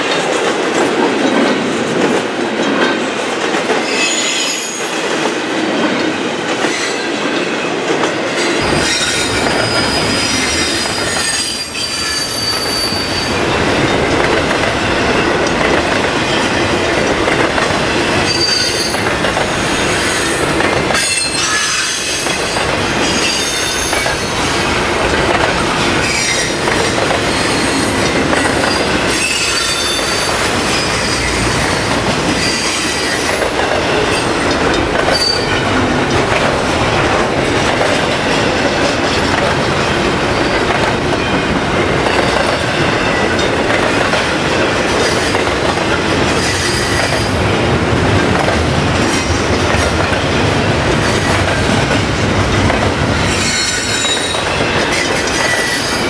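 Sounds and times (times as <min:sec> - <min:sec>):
wheel squeals: 0:08.7 - 0:13.4.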